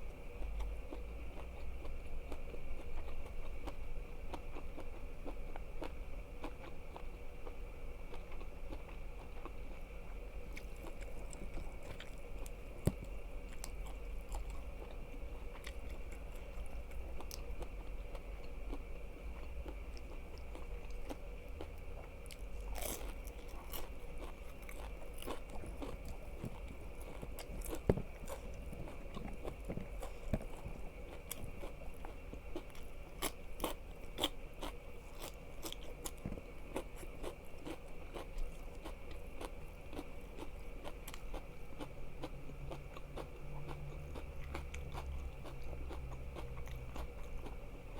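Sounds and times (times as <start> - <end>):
crunchy chewing: 0.0 - 47.9.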